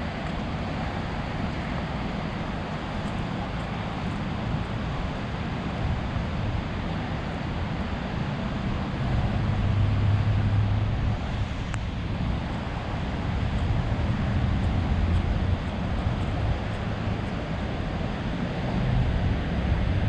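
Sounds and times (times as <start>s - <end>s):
traffic noise: 0.0s - 20.0s
vehicles rumbling by: 0.0s - 20.0s.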